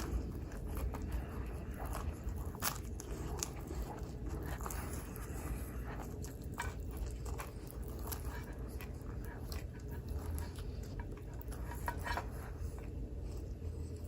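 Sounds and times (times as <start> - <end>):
breathing: 0.0 - 6.4
chewing with mouth clicks: 0.0 - 14.0
steady low rumble: 0.0 - 14.0.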